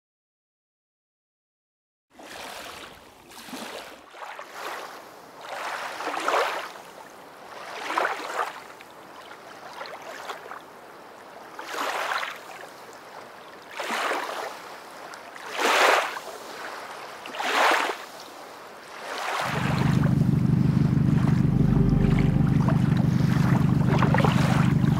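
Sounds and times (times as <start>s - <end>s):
small waves lapping on pebbles: 2.2s - 19.5s.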